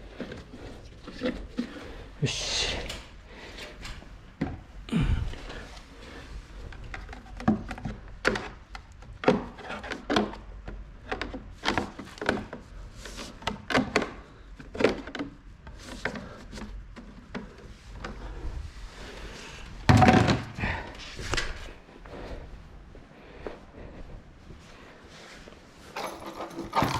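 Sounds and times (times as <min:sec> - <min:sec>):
knocks and clunks of tools: 0:26.0 - 0:26.9.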